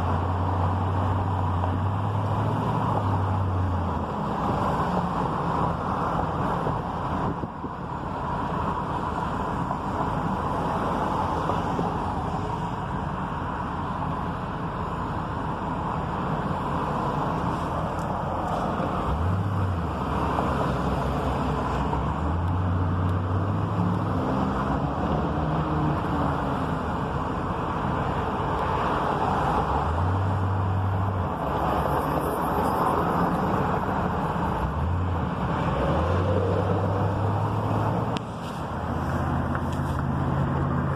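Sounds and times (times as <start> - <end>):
road traffic rumble: 0.0 - 40.9.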